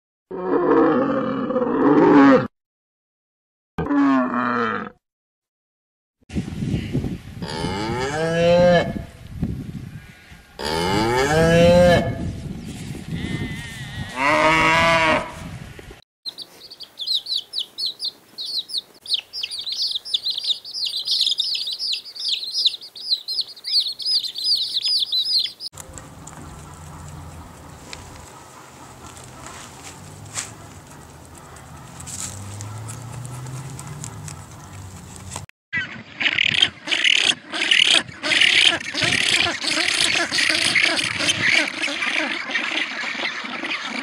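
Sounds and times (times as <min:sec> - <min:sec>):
cow mooing: 0:10.1 - 0:12.2, 0:13.1 - 0:15.4
small birds chirping: 0:16.3 - 0:35.4.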